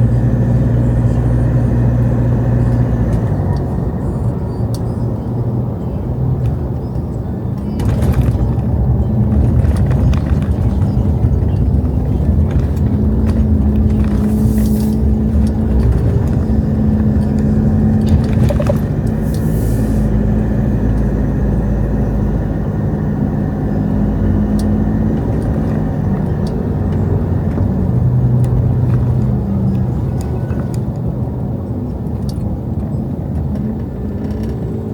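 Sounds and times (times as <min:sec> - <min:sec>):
vehicle engine rumbling: 0:00.0 - 0:34.9
brief hisses: 0:19.3 - 0:20.1.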